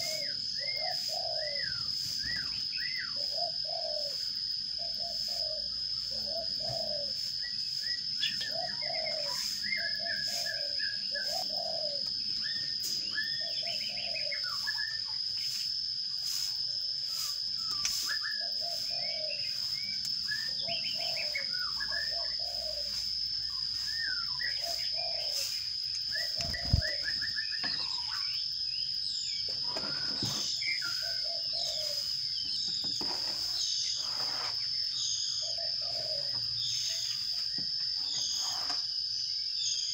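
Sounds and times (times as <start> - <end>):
dove cooing: 0.0 - 15.0, 18.3 - 19.5, 20.3 - 23.2, 23.9 - 25.5, 26.2 - 28.1, 29.6 - 32.1, 35.4 - 37.0
sparrows chirping: 0.0 - 39.9.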